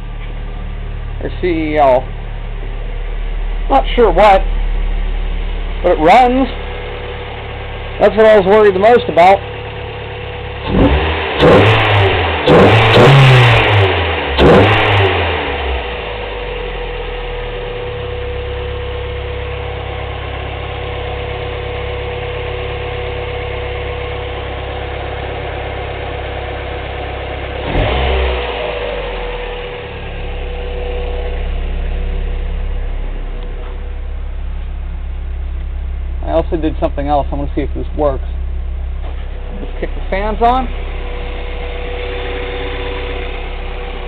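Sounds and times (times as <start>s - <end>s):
car engine idling: 0.0s - 44.0s
car engine revving: 0.0s - 44.0s.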